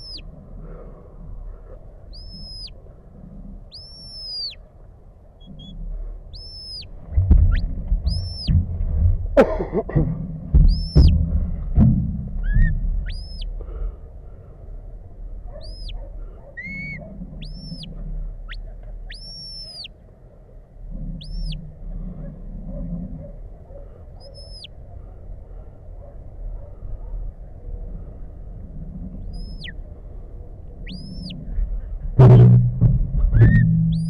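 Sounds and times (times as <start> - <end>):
low rumble: 0.0 - 34.0.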